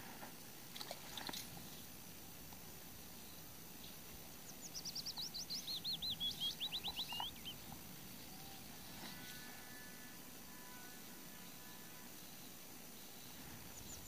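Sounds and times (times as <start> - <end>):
low background hiss: 0.0 - 14.0
songbird singing whistled notes: 4.4 - 7.6.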